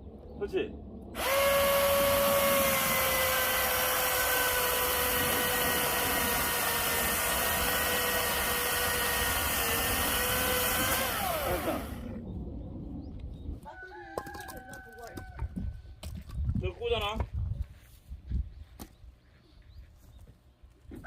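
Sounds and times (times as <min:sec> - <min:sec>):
electric chainsaw cutting log: 0:01.2 - 0:12.2.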